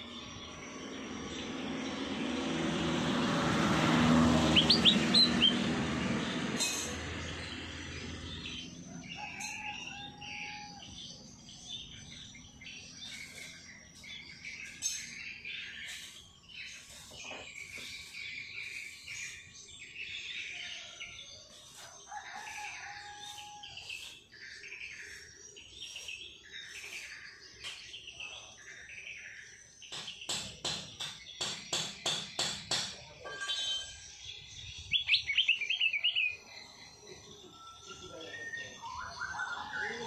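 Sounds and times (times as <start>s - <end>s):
songbirds chirping: 0.0s - 40.0s.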